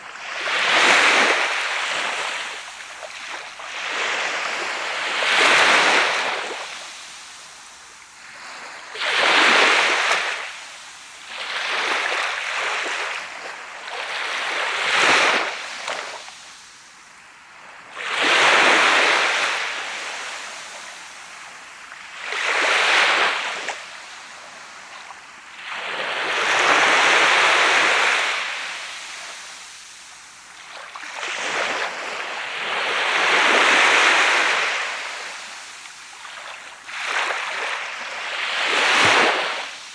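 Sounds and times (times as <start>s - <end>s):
sea waves breaking on beach: 22.2s - 39.9s.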